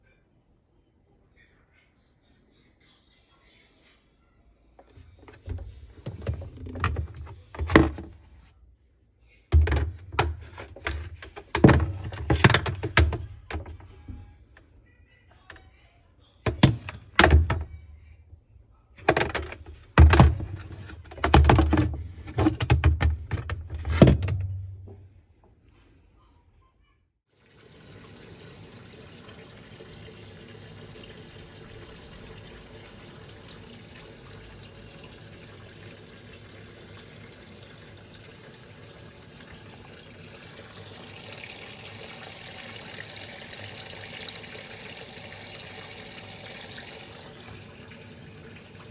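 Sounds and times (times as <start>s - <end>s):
water running: 4.8s - 8.5s, 9.5s - 14.3s, 16.5s - 17.7s, 19.0s - 25.0s, 27.4s - 48.9s
washing machine knocking and thudding: 4.9s - 8.4s, 9.5s - 14.3s, 16.5s - 18.0s, 19.0s - 25.1s.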